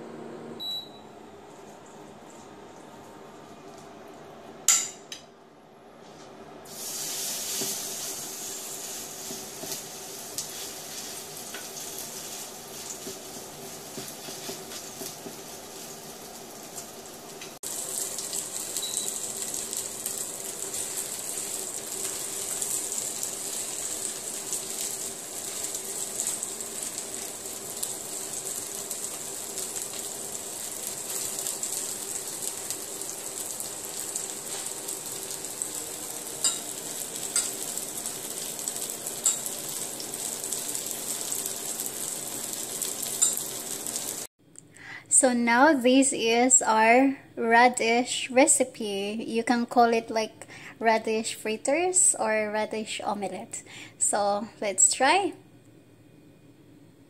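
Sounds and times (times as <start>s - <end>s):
batter sizzling in hot oil: 6.6s - 44.3s.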